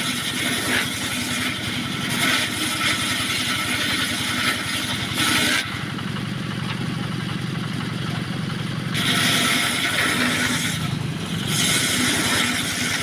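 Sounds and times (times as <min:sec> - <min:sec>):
saw blade cutting wood: 0:00.0 - 0:05.9, 0:08.9 - 0:13.0
sawmill engine running: 0:00.0 - 0:13.0.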